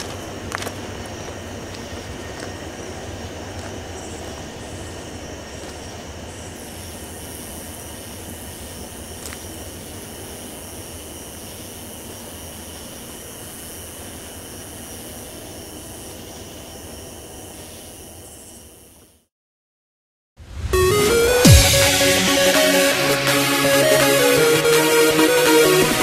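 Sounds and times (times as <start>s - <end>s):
distant train rumble: 0.0s - 10.6s
steady high buzz: 20.5s - 26.0s.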